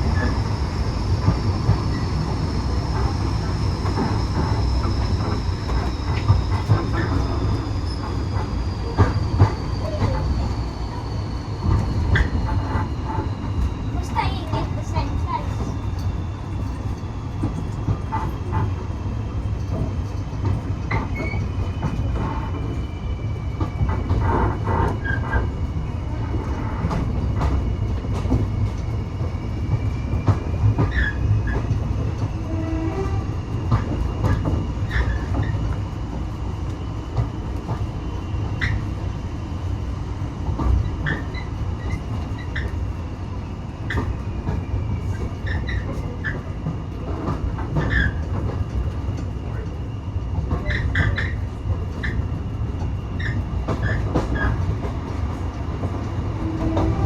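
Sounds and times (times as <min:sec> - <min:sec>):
train carriage rumble: 0:00.0 - 0:57.0
wheels clicking over rail joints: 0:43.9 - 0:49.7.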